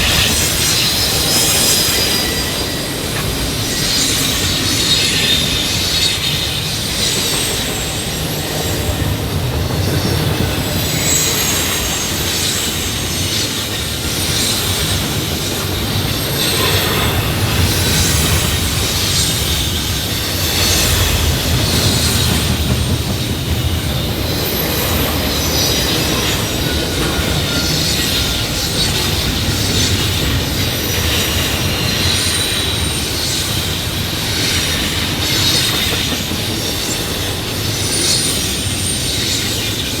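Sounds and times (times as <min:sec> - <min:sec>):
train wheels rumbling over rail joints: 0:00.0 - 0:40.0
wheel-flange squeal: 0:00.0 - 0:40.0.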